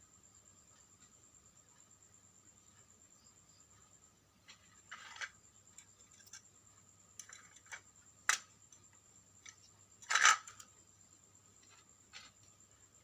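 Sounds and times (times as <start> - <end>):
scraping rustles of small objects: 4.4 - 6.5, 9.5 - 10.7, 11.6 - 12.5.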